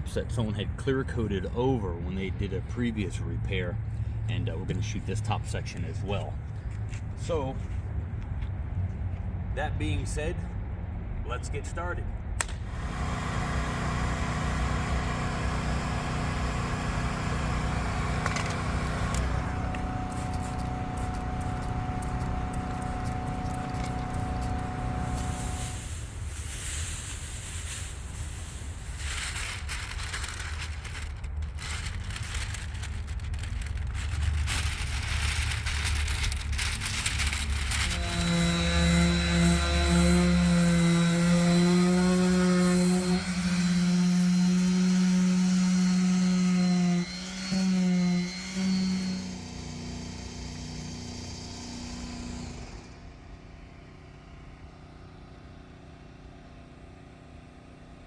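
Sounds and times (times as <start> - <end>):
motor whining: 12.7 - 26.4, 33.4 - 50.4
power tool scraping: 12.7 - 53.0.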